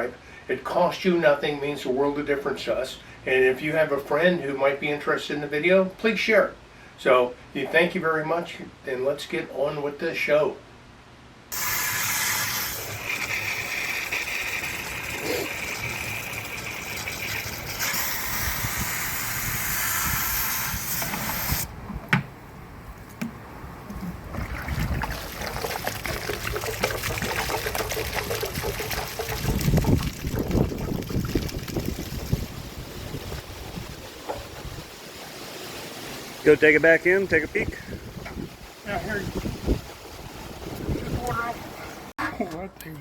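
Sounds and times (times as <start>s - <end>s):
water rushing and splashing: 24.0s - 37.7s.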